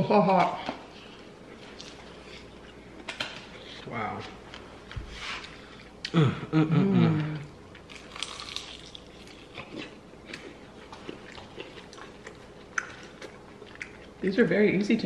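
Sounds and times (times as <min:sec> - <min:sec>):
crunching and chewing: 0:01.2 - 0:03.8, 0:07.7 - 0:14.2.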